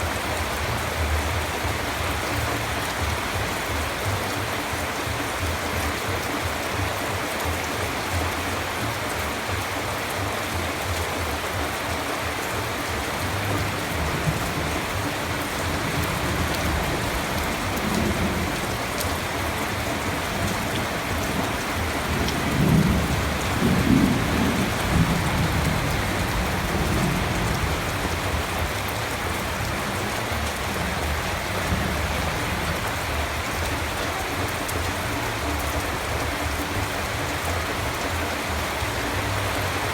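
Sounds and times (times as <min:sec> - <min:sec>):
heavy rain: 0:00.0 - 0:39.9
thunder rumbling: 0:13.2 - 0:33.8.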